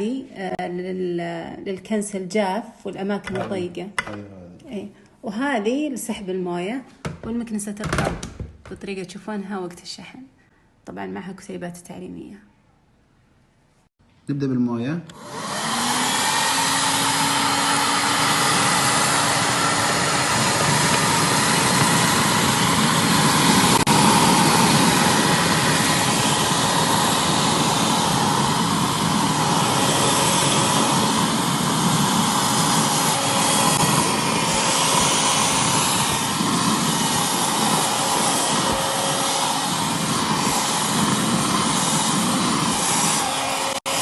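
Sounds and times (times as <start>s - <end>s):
vacuum cleaner whining: 15.1s - 44.0s.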